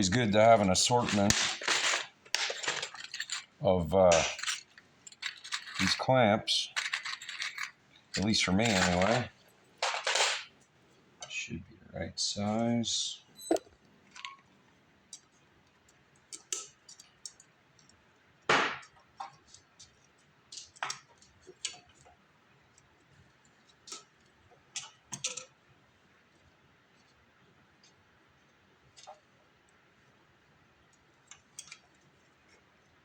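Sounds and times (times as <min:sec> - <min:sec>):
small metallic clicks and clinks: 0:00.1 - 0:10.5, 0:24.8 - 0:25.6, 0:31.3 - 0:31.9.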